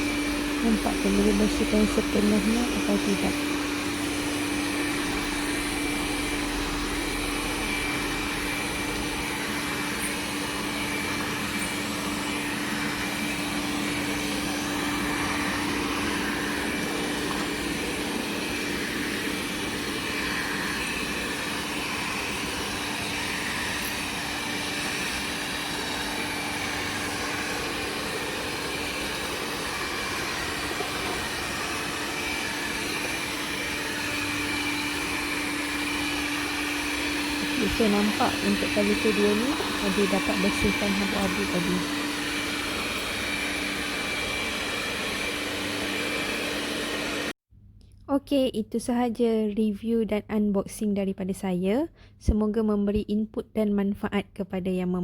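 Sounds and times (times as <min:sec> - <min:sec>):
robot vacuum humming: 0:00.0 - 0:47.3.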